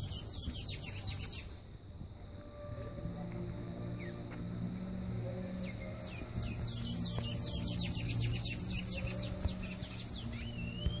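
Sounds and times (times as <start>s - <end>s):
bird chirping: 0.0s - 1.6s, 3.9s - 11.0s
rising bird whistle: 5.5s - 11.0s.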